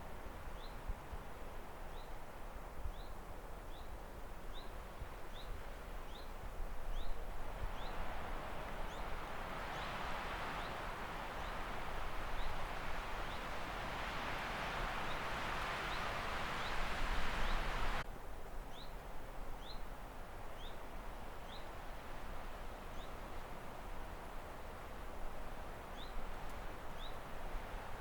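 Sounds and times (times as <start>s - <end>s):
rustling hiss: 9.5s - 18.0s.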